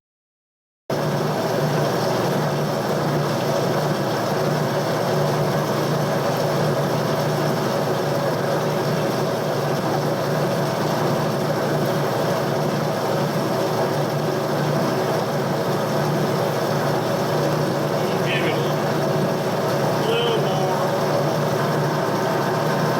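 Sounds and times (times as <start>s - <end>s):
machine tool motor humming: 17.8s - 22.9s.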